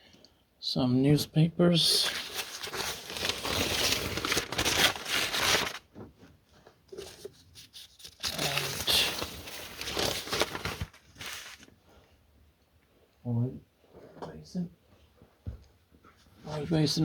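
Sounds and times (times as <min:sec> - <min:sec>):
newspaper rustling and crinkling: 0:01.9 - 0:06.1, 0:06.9 - 0:11.8.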